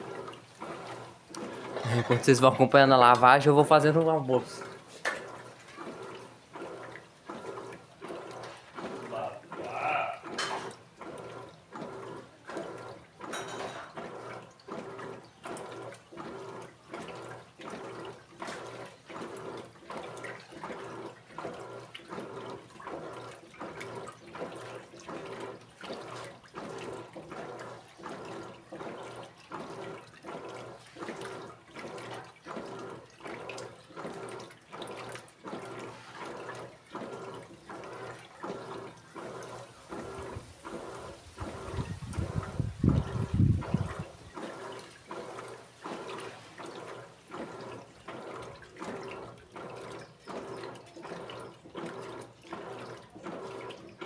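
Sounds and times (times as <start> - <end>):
washing machine sloshing: 0.0 - 54.0.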